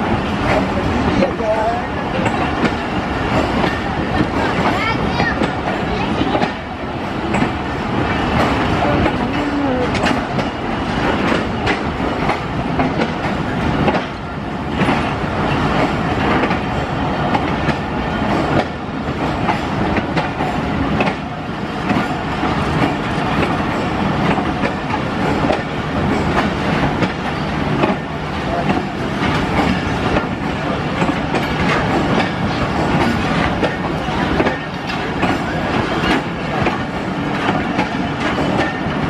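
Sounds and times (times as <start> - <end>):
train coaches rumbling past: 0.0 - 39.0
wheels clicking over rail joints: 8.3 - 39.0.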